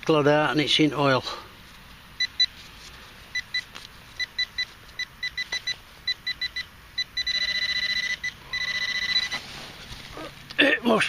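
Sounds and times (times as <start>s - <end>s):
metal detector steady tone: 3.3s - 9.4s.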